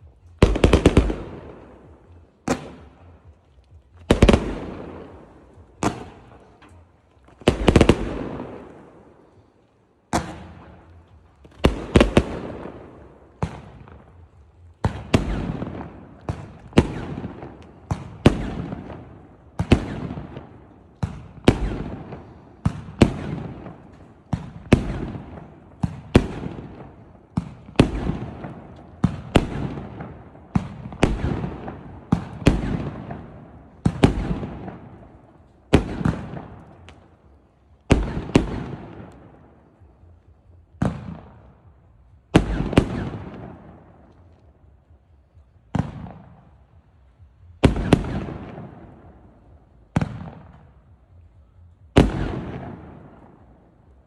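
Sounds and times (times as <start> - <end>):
fireworks bangs: 0.0 - 9.4, 10.1 - 37.2, 37.8 - 44.5, 47.4 - 51.0
fireworks crackle: 0.0 - 41.4.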